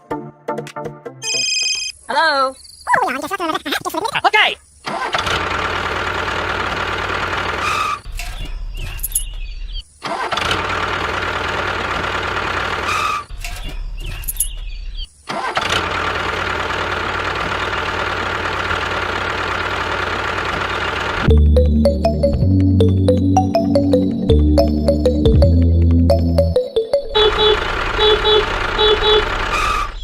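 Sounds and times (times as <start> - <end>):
tractor motor whining: 27.1 - 30.0.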